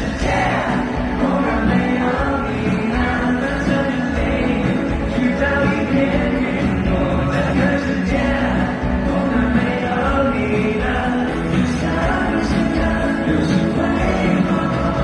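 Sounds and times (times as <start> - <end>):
live pop band: 0.0 - 15.0
many voices singing together: 0.0 - 15.0.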